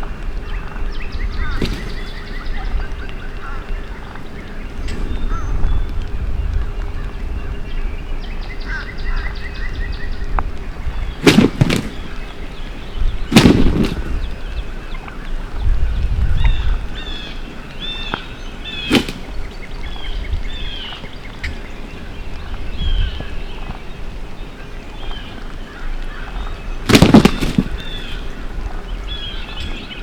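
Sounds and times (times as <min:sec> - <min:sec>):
songbirds chirping: 0:00.0 - 0:30.0
sharp crack: 0:01.4 - 0:02.8, 0:11.1 - 0:14.6, 0:18.1 - 0:20.0, 0:26.1 - 0:30.0
loud rattling bursts: 0:13.3 - 0:14.3, 0:26.9 - 0:28.3.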